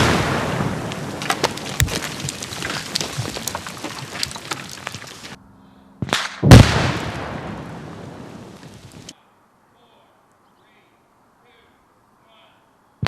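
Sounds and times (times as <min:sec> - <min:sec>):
loud explosion blast: 0:00.0 - 0:02.3, 0:06.0 - 0:08.5
falling rock and debris patter: 0:00.0 - 0:05.4, 0:07.9 - 0:09.1
sharp crack: 0:00.0 - 0:05.4, 0:06.0 - 0:09.1.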